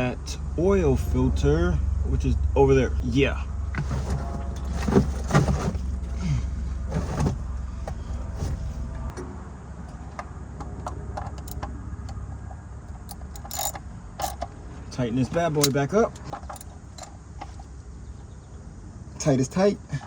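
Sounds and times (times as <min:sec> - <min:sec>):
steady low rumble: 0:00.0 - 0:19.5
metallic clicks of tools: 0:12.9 - 0:14.5.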